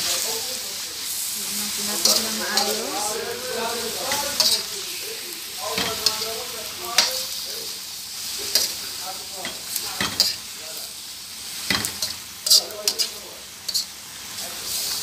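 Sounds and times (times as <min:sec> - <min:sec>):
food sizzling in a wok: 0:00.0 - 0:15.0
metal spoon scraping a pan: 0:01.9 - 0:04.8, 0:05.6 - 0:06.4, 0:08.4 - 0:10.5, 0:11.6 - 0:14.0.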